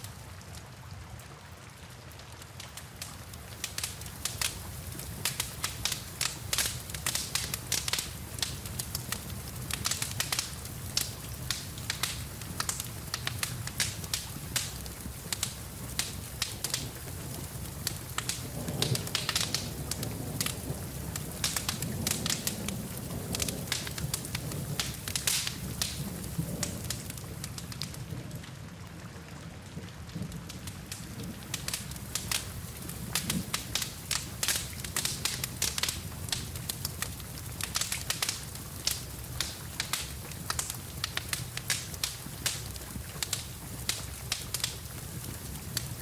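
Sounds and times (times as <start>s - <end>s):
rain: 0.0s - 46.0s
wood fire crackling: 0.0s - 46.0s.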